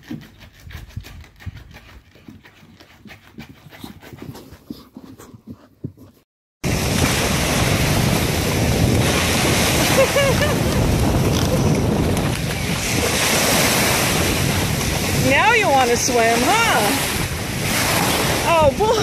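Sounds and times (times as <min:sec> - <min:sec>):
ocean surf breaking: 0:06.6 - 0:19.0
wind buffeting microphone: 0:06.6 - 0:19.0.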